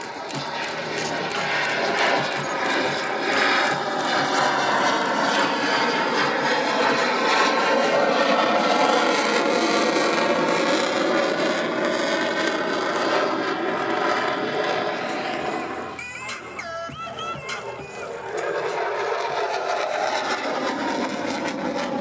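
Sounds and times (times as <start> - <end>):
fighter jet roar: 0.0 - 16.6, 17.5 - 22.0.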